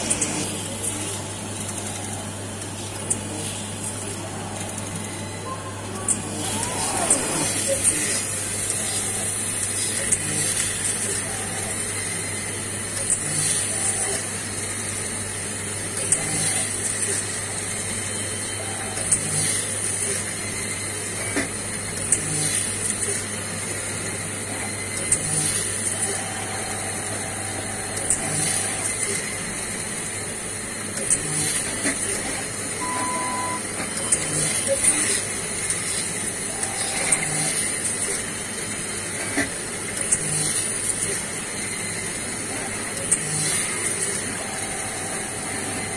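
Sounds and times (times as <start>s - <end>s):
machine hum and hiss: 0.0s - 45.9s
mechanical clicks and whirs: 0.0s - 45.9s
brief steady tone: 32.8s - 34.9s.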